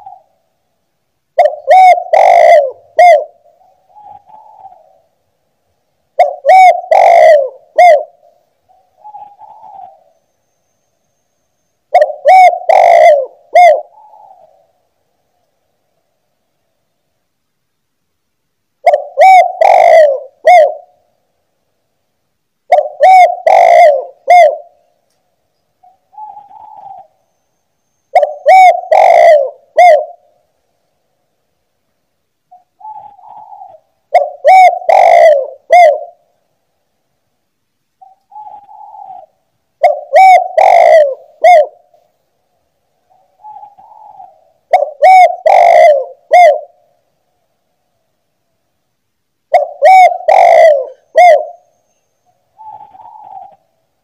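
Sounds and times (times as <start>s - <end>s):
dove cooing: 0.0s - 0.5s, 1.4s - 5.1s, 6.2s - 10.2s, 11.9s - 14.7s, 18.8s - 21.0s, 22.7s - 24.9s, 25.8s - 27.3s, 28.1s - 30.4s, 32.5s - 36.3s, 38.0s - 42.0s, 43.1s - 47.0s, 49.5s - 53.8s.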